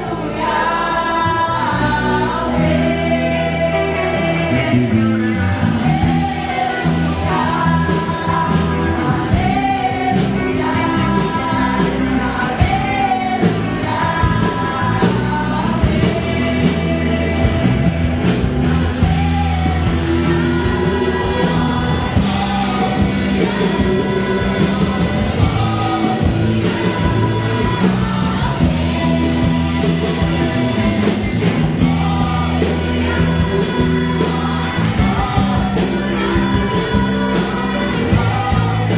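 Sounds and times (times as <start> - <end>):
bass guitar: 0.0 - 38.9
drums: 0.0 - 38.9
group singing: 0.0 - 38.9
guitar: 0.0 - 38.9.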